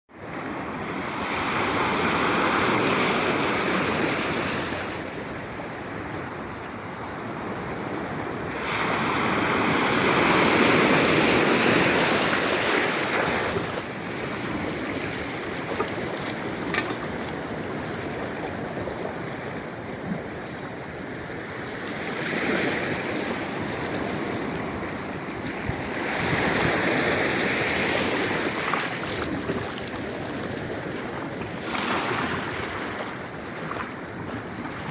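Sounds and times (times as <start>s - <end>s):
waves breaking on shore: 0.1s - 34.9s.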